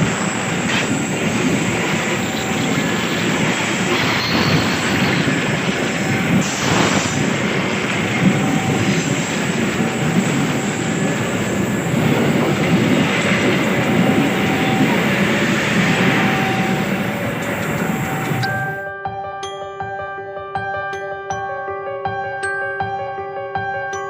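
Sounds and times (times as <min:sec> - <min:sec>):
wheel squeals: 0:00.0 - 0:07.2, 0:07.9 - 0:18.8
train wheels rumbling on rails: 0:00.0 - 0:18.8.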